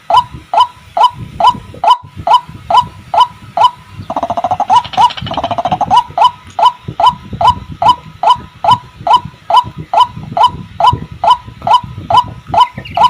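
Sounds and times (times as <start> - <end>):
bird chattering run: 3.6 - 13.0.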